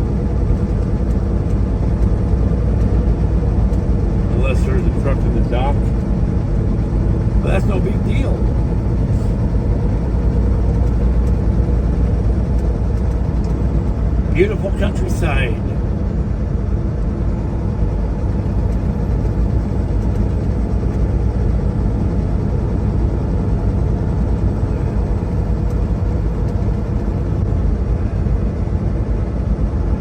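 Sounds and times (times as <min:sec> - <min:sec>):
truck diesel engine rumble: 0:00.0 - 0:15.8
road noise: 0:00.0 - 0:26.8.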